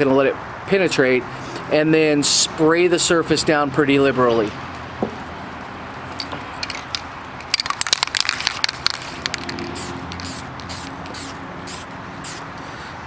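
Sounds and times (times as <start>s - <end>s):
sharp crackles and crinkles: 6.2s - 11.1s
short hissing spray bursts: 9.4s - 12.5s.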